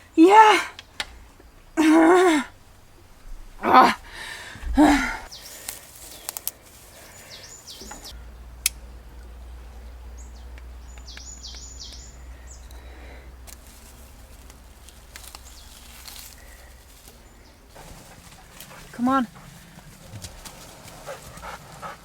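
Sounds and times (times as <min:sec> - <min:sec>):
steady low rumble: 0:00.8 - 0:22.0
loud human vocal sound: 0:03.6 - 0:05.3
small bird chirping: 0:05.2 - 0:08.4, 0:09.5 - 0:13.0, 0:13.6 - 0:17.8.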